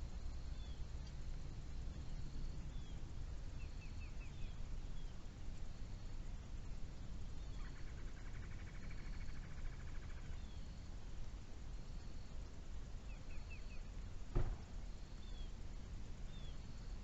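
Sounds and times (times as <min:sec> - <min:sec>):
low wind rumble: 0:00.0 - 0:17.0
songbirds chirping: 0:00.0 - 0:17.0.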